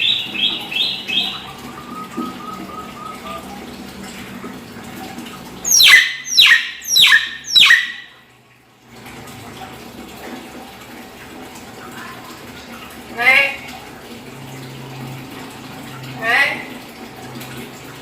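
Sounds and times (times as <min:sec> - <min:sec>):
myna harsh downward calls: 0:05.7 - 0:08.1.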